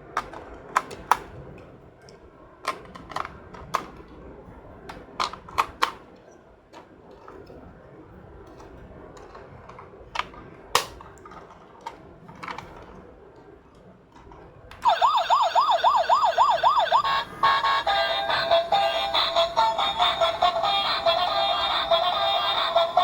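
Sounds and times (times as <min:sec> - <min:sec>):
plastic toys clicking: 0:00.1 - 0:01.3, 0:02.6 - 0:04.1, 0:04.9 - 0:06.0, 0:08.5 - 0:13.0
electronic toy tune: 0:14.8 - 0:23.0
toy siren wailing: 0:14.8 - 0:23.0.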